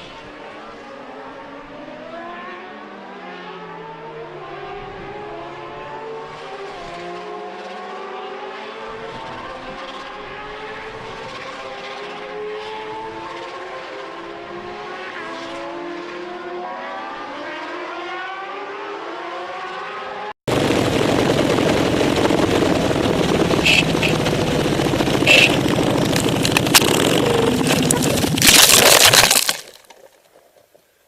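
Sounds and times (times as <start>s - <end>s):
vehicle engine running: 20.5s - 28.5s
loud rush of noise: 20.5s - 29.8s
rough engine with sharp knocks: 23.4s - 30.1s.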